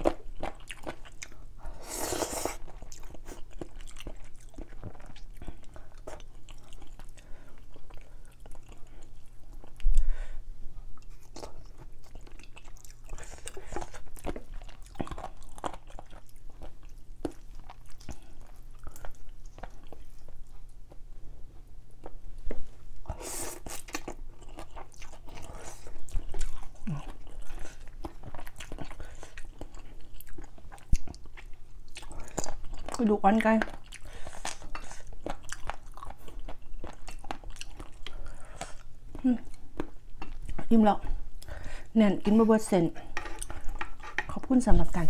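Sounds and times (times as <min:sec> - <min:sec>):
person chewing noodles: 0:00.0 - 0:41.9, 0:43.0 - 0:44.4.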